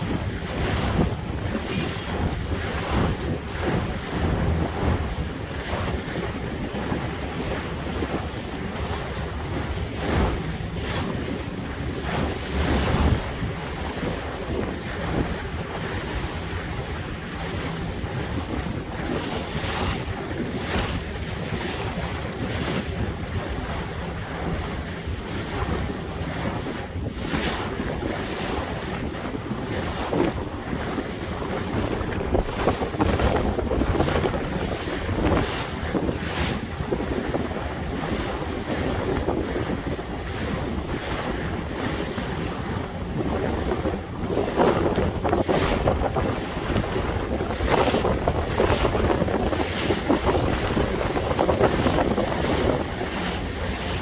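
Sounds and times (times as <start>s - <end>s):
water rushing along hull: 0.0s - 54.0s
wind buffeting microphone: 0.0s - 54.0s.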